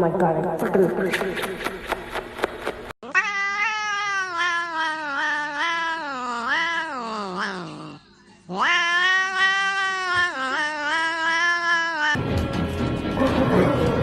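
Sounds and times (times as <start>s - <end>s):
cat yowling: 3.0s - 12.2s.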